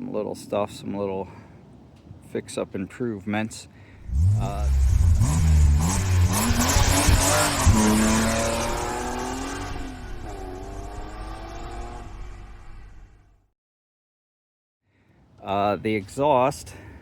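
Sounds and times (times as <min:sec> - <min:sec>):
truck exhaust accelerating hard: 0:04.0 - 0:13.3.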